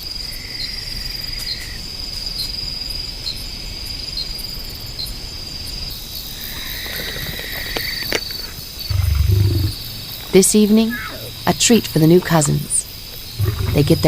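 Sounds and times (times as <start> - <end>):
lower insect trill: 0.1 - 14.0
crickets high trill: 6.2 - 14.0.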